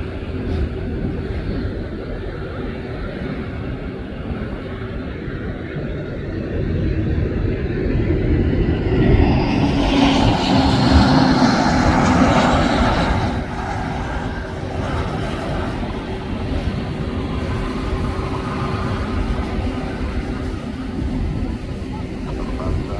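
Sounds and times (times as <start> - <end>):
jet airliner passing: 0.0 - 22.9
low hum: 6.6 - 22.9.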